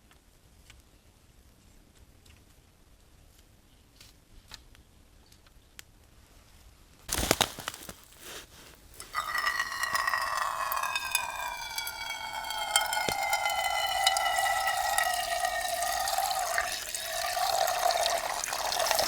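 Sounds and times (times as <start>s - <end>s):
rustle or crinkle: 7.1s - 9.2s
water pouring into container: 9.0s - 19.0s.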